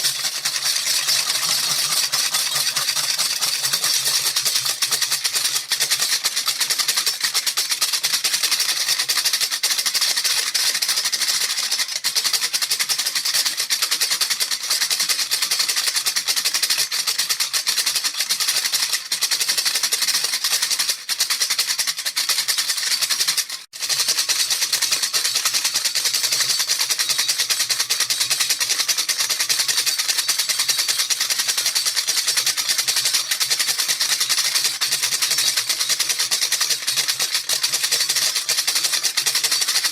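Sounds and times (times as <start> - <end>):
baby rattle shaken rapidly: 0.0 - 39.9.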